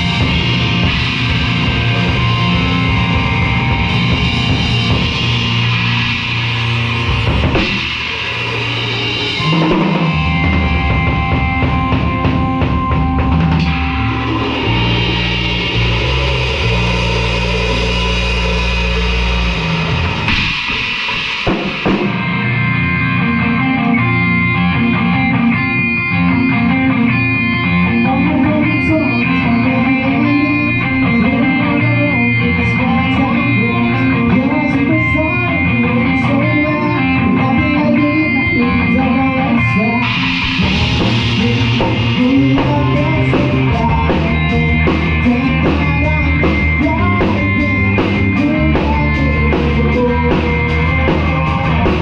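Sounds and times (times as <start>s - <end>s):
live rock band playing: 0.0s - 52.0s.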